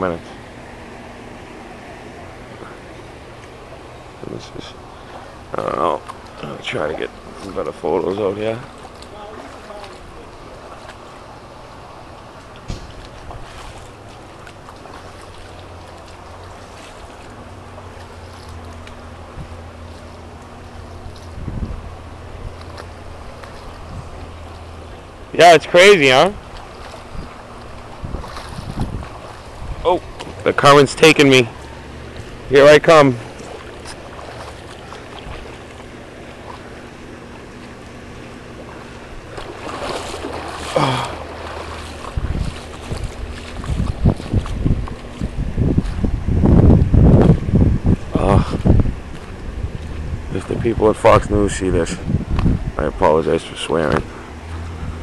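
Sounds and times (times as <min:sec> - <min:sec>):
floodwater flowing: 0:00.0 - 0:55.0
low engine hum: 0:00.0 - 0:55.0
small splashes: 0:04.7 - 0:46.1
wind on microphone: 0:20.8 - 0:24.4, 0:26.4 - 0:30.4, 0:39.3 - 0:53.0.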